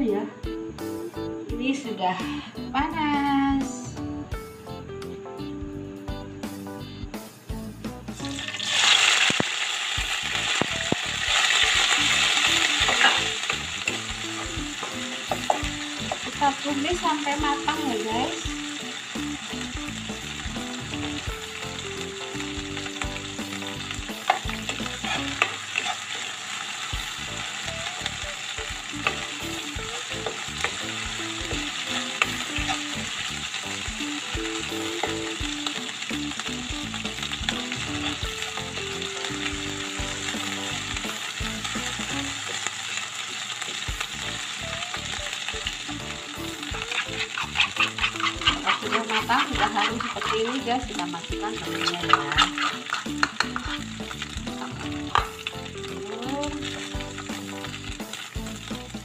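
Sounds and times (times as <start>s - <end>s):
spice paste sizzling in oil: 8.1s - 59.0s
metal spoon scraping a pan: 12.8s - 14.0s, 24.2s - 26.3s, 32.2s - 33.0s, 46.7s - 54.0s.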